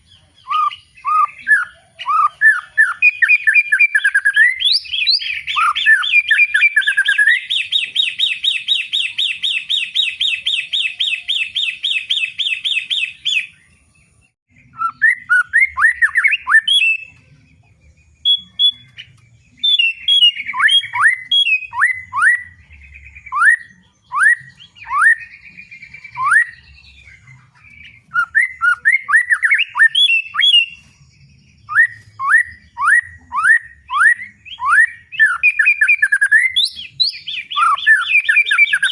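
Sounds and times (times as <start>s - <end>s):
songbird trilling and whistling: 0.0s - 38.9s.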